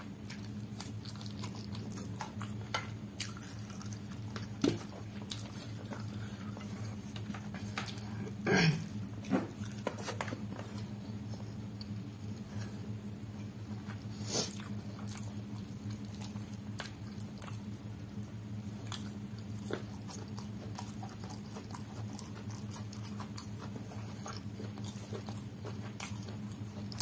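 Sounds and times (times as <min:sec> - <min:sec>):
steady low hum: 0:00.0 - 0:27.0
wet chewing mouth sounds: 0:00.1 - 0:08.3, 0:13.7 - 0:27.0.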